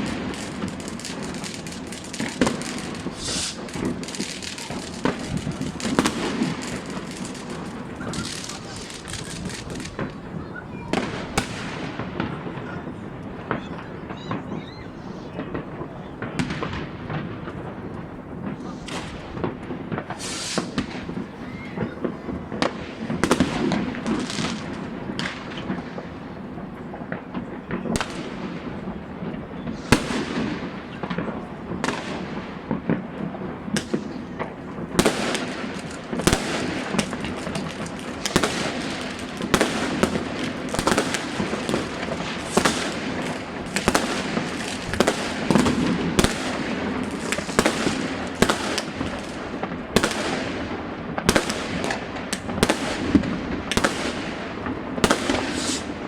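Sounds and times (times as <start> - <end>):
nearby firework shell bursts: 0.0 - 12.8, 18.5 - 21.2, 55.0 - 56.0
distant fireworks bangs and crackle: 0.0 - 56.0.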